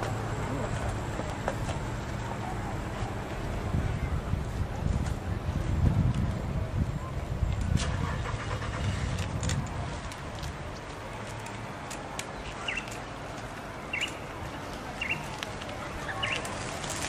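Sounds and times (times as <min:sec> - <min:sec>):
bird chirping: 0:12.4 - 0:13.0, 0:13.9 - 0:14.2, 0:15.0 - 0:15.3, 0:16.0 - 0:16.5.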